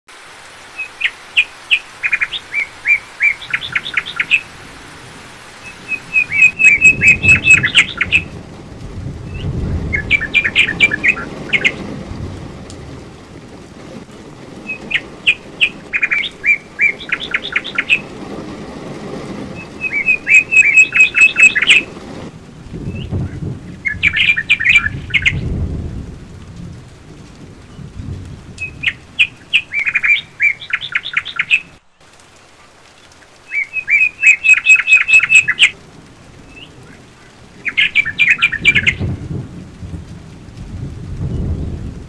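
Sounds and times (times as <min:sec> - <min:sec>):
falling rain: 0:00.1 - 0:42.0
songbird singing sharp notes: 0:05.6 - 0:08.3, 0:10.0 - 0:11.8, 0:19.8 - 0:21.9, 0:33.5 - 0:35.8.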